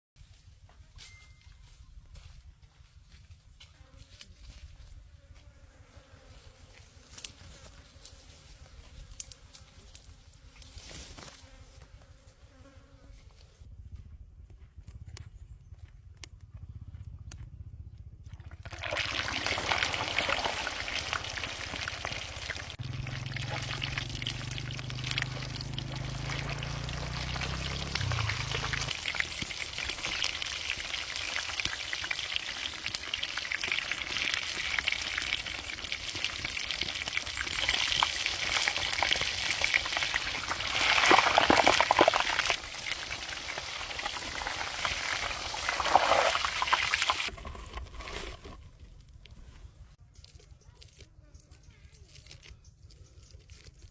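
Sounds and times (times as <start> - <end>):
chicken frying in hot oil: 18.6 - 47.3.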